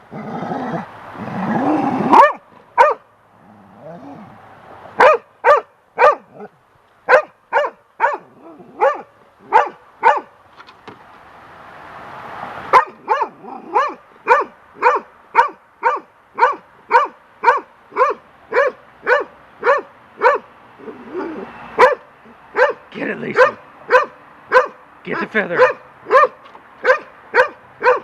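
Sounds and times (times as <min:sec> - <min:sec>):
dog barking: 0:02.1 - 0:03.1, 0:05.0 - 0:06.5, 0:07.1 - 0:10.3, 0:12.7 - 0:20.5, 0:21.2 - 0:28.0.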